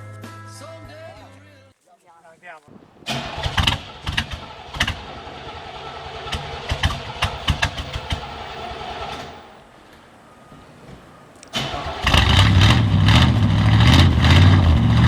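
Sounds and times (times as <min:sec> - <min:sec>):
engine running: 0:03.0 - 0:15.0
sharp clicks and knocks: 0:06.3 - 0:10.1.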